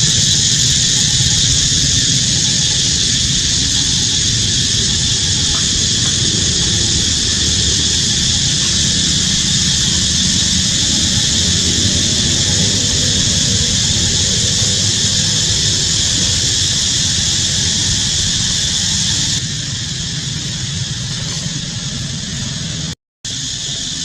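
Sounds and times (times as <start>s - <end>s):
low rumble: 0.0s - 23.7s
insects droning: 0.0s - 24.0s.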